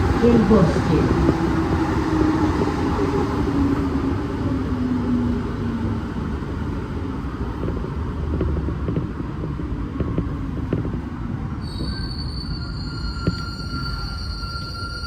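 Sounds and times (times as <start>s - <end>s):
metro car low rumble: 0.0s - 15.0s.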